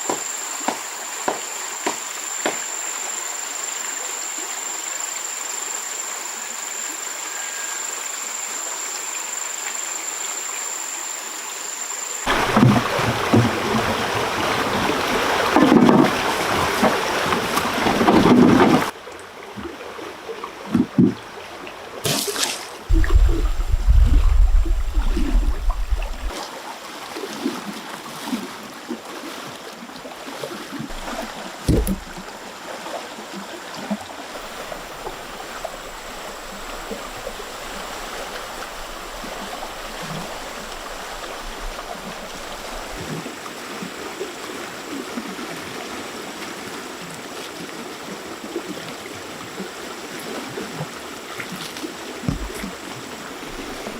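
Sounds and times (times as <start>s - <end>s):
stream water running: 0.0s - 53.9s
low rumble: 22.9s - 26.3s
sharp knocks: 30.9s - 32.2s.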